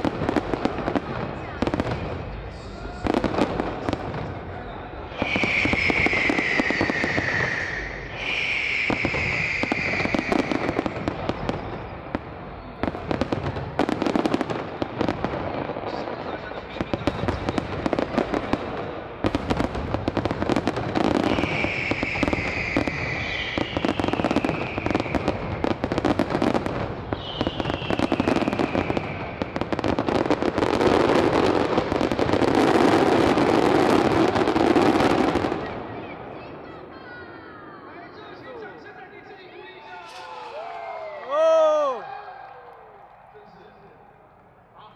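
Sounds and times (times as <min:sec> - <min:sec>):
fireworks crackling and popping: 0:00.0 - 0:36.4, 0:39.9 - 0:42.0
whistling shells falling whistle: 0:05.2 - 0:10.4.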